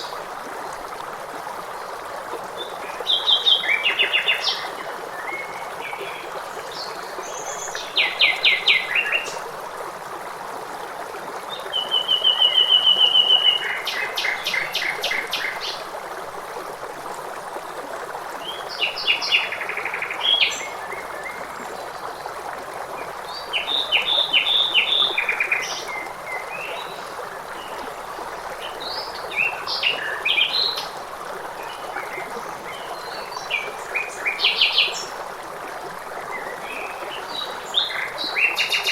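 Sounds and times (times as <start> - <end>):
stream rushing: 0.0 - 38.9.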